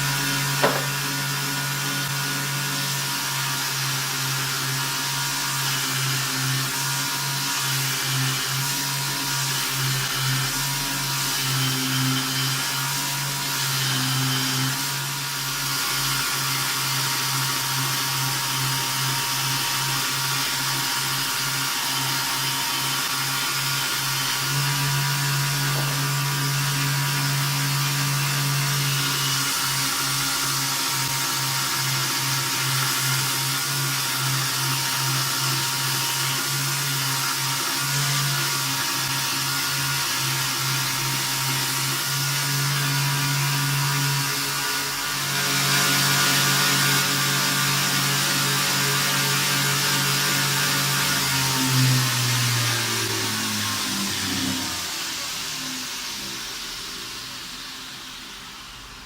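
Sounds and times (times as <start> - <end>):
motor hum: 0.1 - 1.6.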